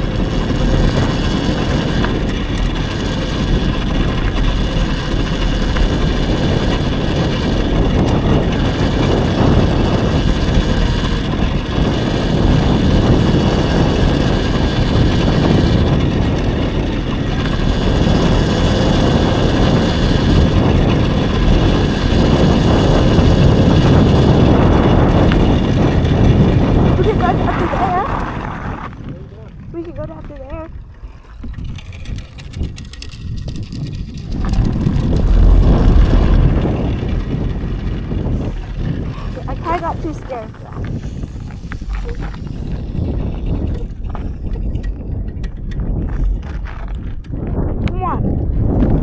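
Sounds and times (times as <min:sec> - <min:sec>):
electric dirt bike riding noise: 0:00.0 - 0:49.0.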